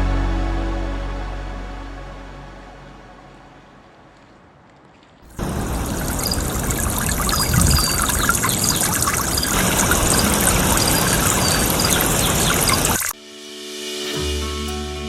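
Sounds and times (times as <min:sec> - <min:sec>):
rushing water: 0:05.3 - 0:13.2.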